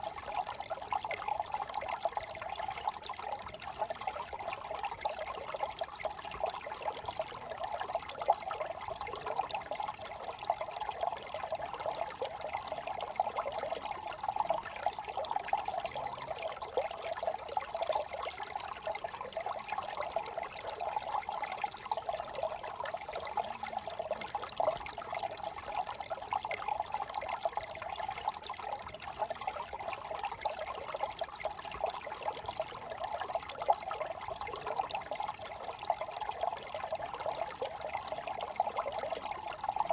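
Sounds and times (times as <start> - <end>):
brook burbling over stones: 0.0 - 39.9.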